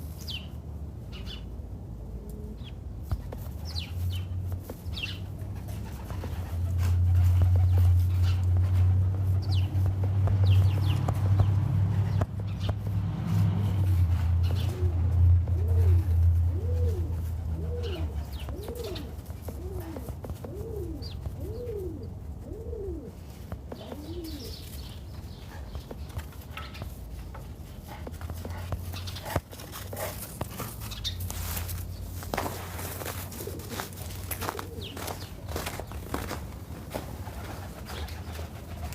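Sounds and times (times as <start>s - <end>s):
low steady hum: 0.0s - 38.9s
dove cooing: 2.0s - 2.8s, 13.7s - 26.0s, 30.8s - 36.4s.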